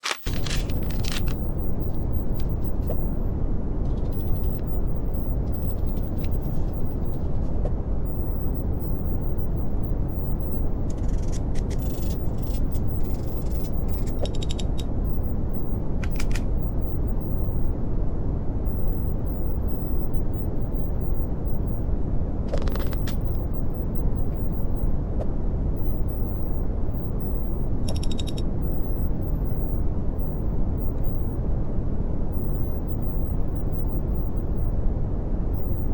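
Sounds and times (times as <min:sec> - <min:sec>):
brown noise hiss: 0:00.2 - 0:27.9.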